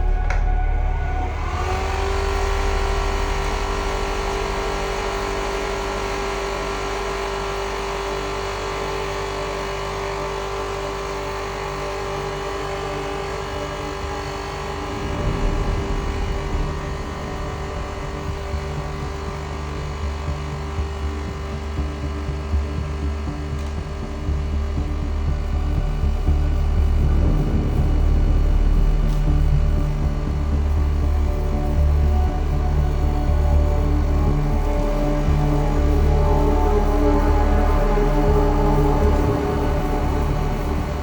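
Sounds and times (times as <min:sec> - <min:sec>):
motor-generator whine and hum: 0:00.0 - 0:41.0.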